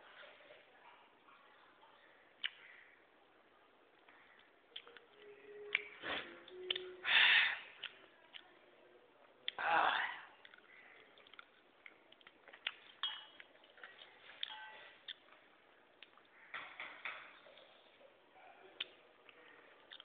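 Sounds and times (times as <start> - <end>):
wet mouth clicks and smacks: 2.4 - 2.6, 10.4 - 15.3.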